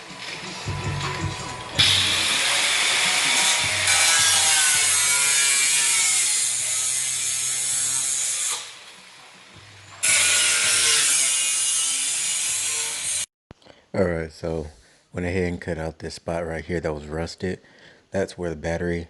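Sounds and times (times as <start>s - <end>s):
power tool cutting sheet metal: 1.6s - 9.1s, 9.9s - 13.3s.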